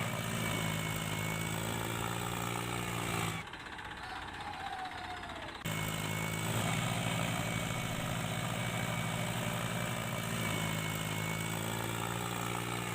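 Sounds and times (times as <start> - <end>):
motor running with fast pulse: 5.6 - 12.9.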